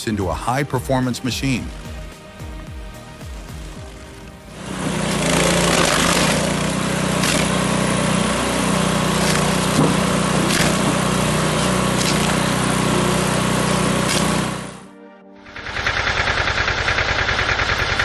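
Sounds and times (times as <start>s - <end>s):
small engine running steadily: 1.7s - 18.0s
machine working noise: 3.4s - 14.8s, 15.5s - 18.0s.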